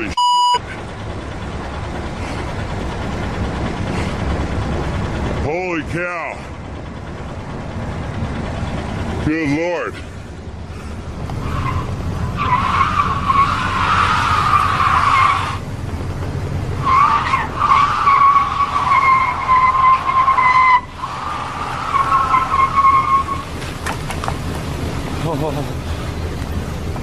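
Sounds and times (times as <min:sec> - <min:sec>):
car tyres squealing: 0:09.8 - 0:15.7, 0:16.8 - 0:26.7.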